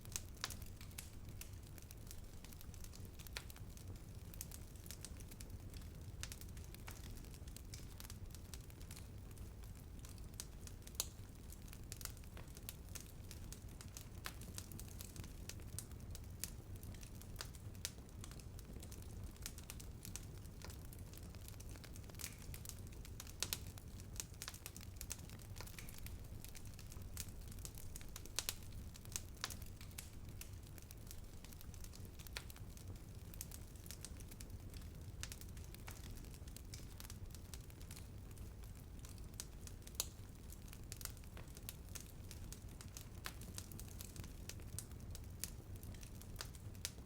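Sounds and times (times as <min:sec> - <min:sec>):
bonfire crackling: 0:00.0 - 0:47.0.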